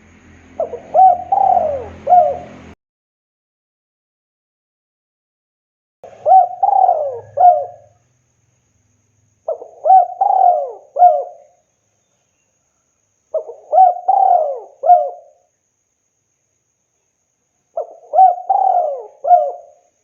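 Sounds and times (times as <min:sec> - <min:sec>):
dove cooing: 0:00.6 - 0:02.8, 0:06.1 - 0:08.0, 0:09.5 - 0:11.5, 0:13.4 - 0:15.4, 0:17.8 - 0:19.8.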